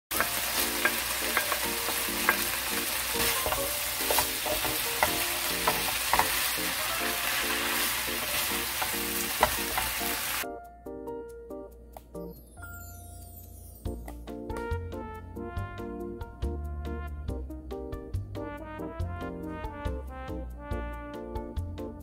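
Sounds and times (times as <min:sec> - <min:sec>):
wooden spatula scraping pan: 0:00.1 - 0:10.4
pork sizzling in frying pan: 0:00.1 - 0:10.5.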